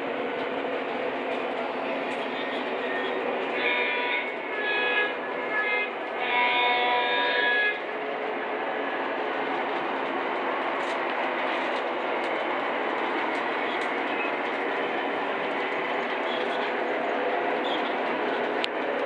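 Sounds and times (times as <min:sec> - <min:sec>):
toy train horn blast: 0:03.5 - 0:07.8.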